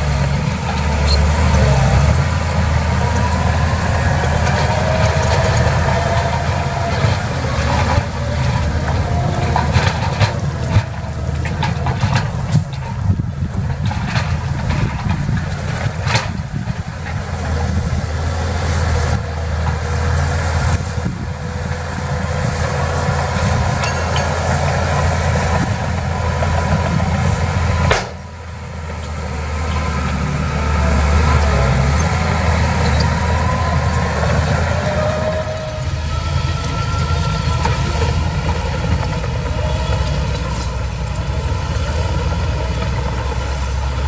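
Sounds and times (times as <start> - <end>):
heavy machinery engine rumbling: 0.0 - 44.0.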